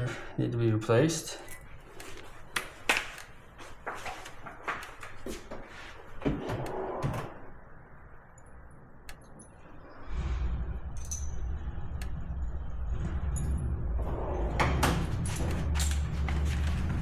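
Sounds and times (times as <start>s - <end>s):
steady low rumble: 7.5s - 17.0s.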